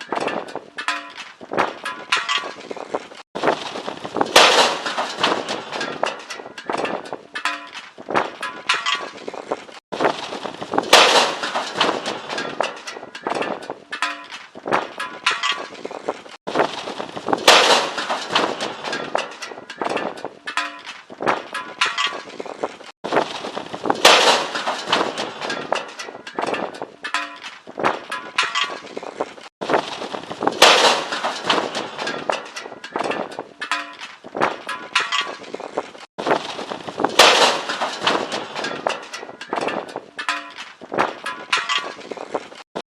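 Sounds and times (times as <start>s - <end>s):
metal grill crashing onto ground: 0.0s - 42.6s
constant rattling: 0.0s - 42.8s.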